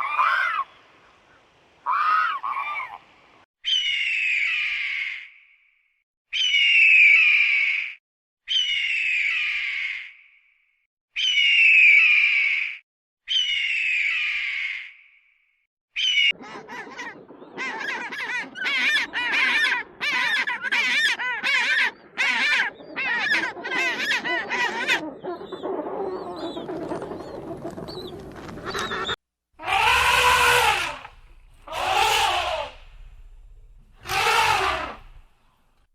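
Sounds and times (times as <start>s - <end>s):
bird calling: 24.9s - 35.9s.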